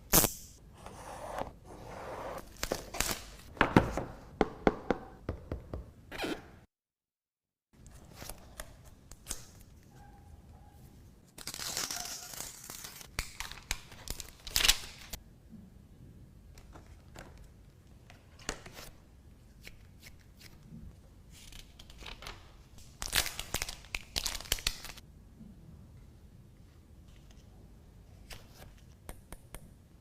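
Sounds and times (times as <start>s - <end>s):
plastic wrap tearing and crinkling: 11.4s - 15.1s.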